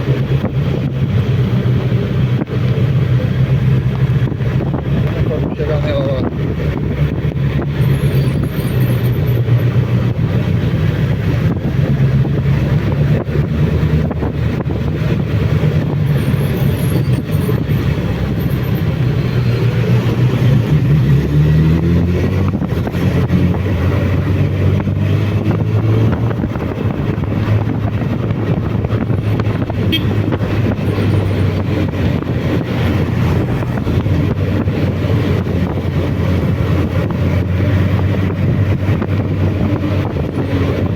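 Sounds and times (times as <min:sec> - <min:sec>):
motorcycle engine running: 0:01.7 - 0:21.3, 0:22.4 - 0:40.9.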